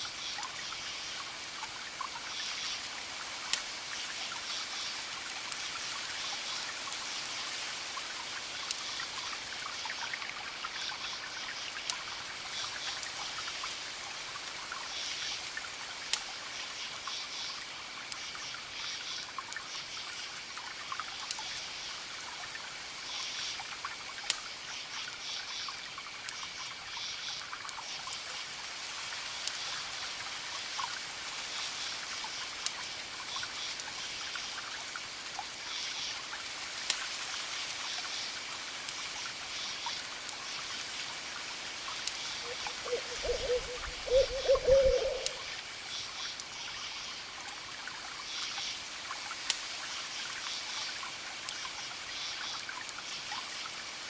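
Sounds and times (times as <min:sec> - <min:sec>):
campfire crackling: 0:00.3 - 0:54.0
crickets chirping: 0:42.2 - 0:47.2
low wavering hooting call: 0:42.4 - 0:45.4.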